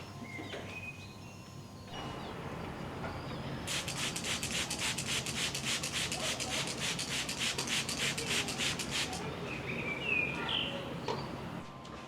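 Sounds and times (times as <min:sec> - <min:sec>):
stiff brush scrubbing: 0:03.7 - 0:09.3.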